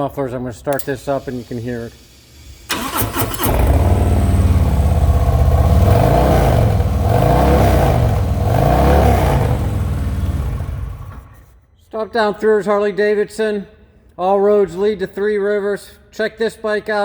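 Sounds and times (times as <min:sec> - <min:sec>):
starter cranking: 0:00.7 - 0:06.8
motorcycle engine revving: 0:02.7 - 0:11.5.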